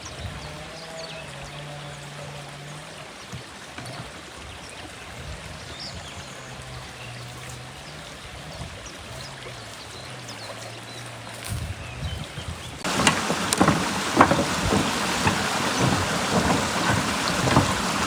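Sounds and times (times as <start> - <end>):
water rushing: 12.8 - 18.0.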